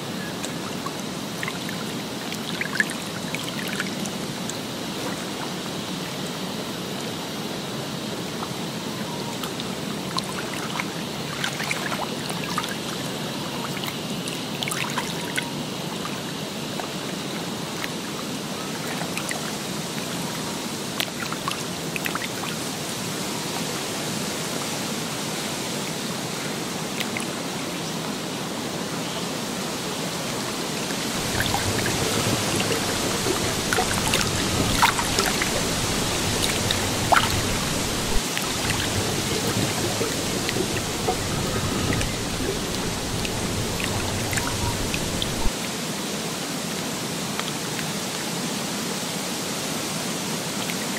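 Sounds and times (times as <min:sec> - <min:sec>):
trickling water: 0:00.0 - 0:06.6, 0:08.2 - 0:23.7, 0:30.2 - 0:45.7
drips and splashes: 0:00.4 - 0:06.3, 0:09.4 - 0:20.2, 0:20.9 - 0:22.8, 0:30.5 - 0:45.6
low rumble: 0:31.2 - 0:45.5.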